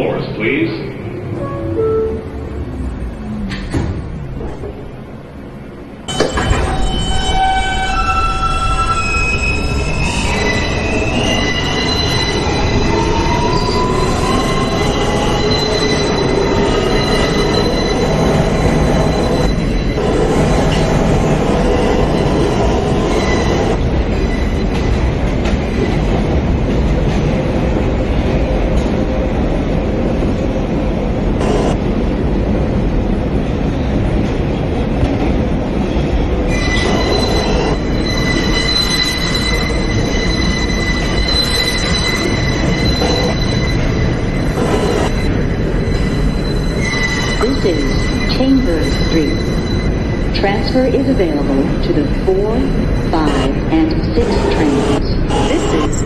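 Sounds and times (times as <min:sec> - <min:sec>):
subway train motor whine: 0:00.0 - 0:56.0
wheels rumbling on rails: 0:00.7 - 0:56.0
high-pitched wheel squeal: 0:06.7 - 0:20.8, 0:36.5 - 0:50.2.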